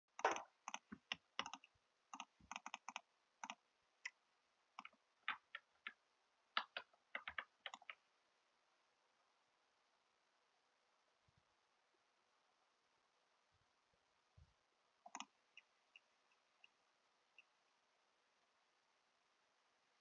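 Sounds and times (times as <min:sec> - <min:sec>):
light irregular clicks and taps: 0:00.2 - 0:04.2, 0:04.8 - 0:06.0, 0:06.6 - 0:08.0, 0:15.0 - 0:17.8.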